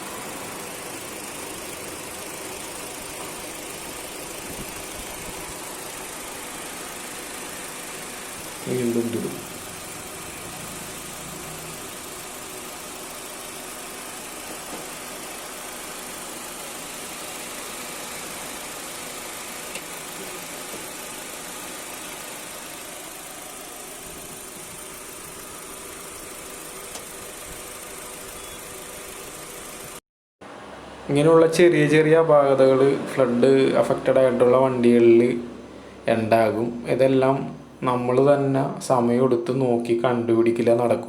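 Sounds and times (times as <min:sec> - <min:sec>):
mechanical hum and hiss: 0:30.5 - 0:39.9.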